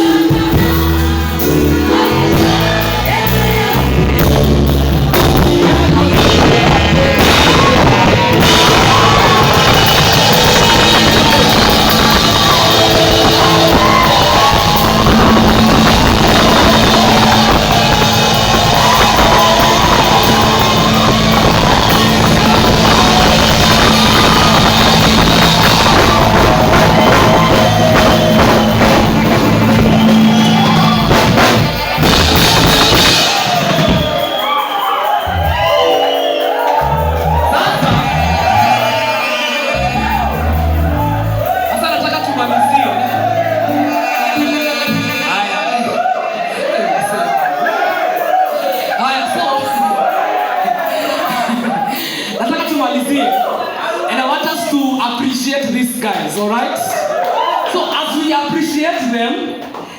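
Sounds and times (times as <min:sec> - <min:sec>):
drum kit beat: 0:00.0 - 0:46.2
loud band music: 0:00.0 - 0:52.3.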